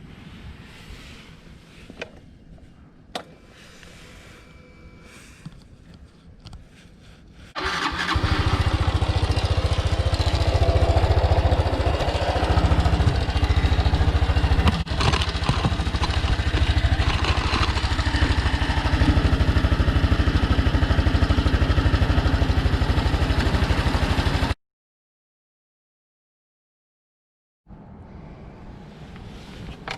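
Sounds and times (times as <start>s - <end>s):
motorcycle engine idling: 7.6s - 24.5s.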